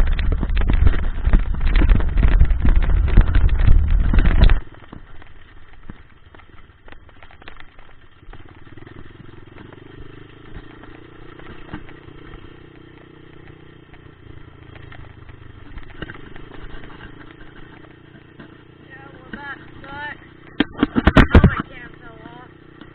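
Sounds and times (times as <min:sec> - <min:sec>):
dirt bike engine running: 0:00.0 - 0:22.9.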